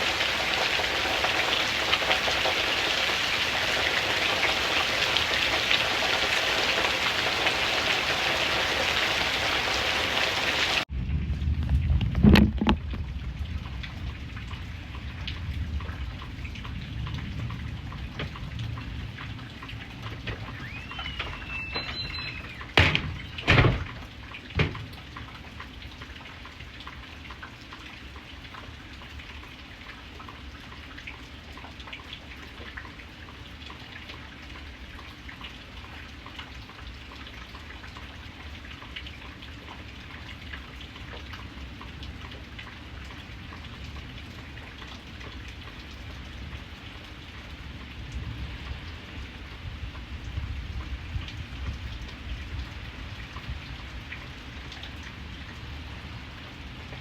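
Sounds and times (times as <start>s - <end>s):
rain falling: 0.0s - 57.0s
short high squeak: 20.4s - 23.4s
loud knocks: 22.7s - 24.0s.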